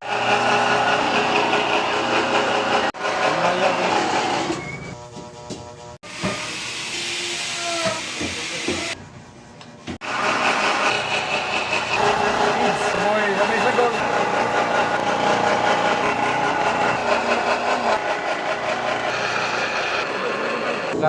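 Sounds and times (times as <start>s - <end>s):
pellet machine running: 0.0s - 5.0s, 10.0s - 21.0s.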